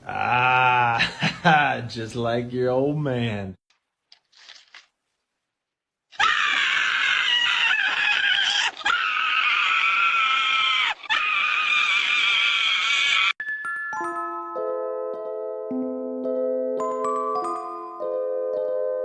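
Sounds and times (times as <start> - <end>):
animal screaming: 6.1 - 13.4.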